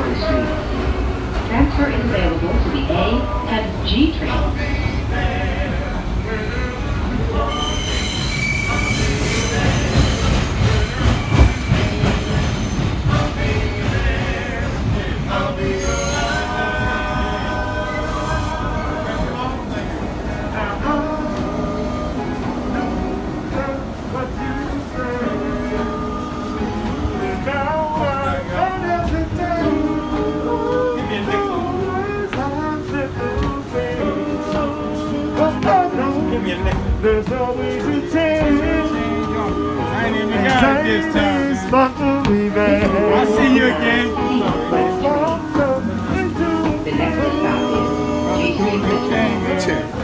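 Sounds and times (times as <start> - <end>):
low rumble of train car: 0.0 - 50.0
voices singing in harmony: 0.0 - 50.0
train wheels squealing: 6.3 - 14.4, 15.3 - 19.8, 45.9 - 50.0.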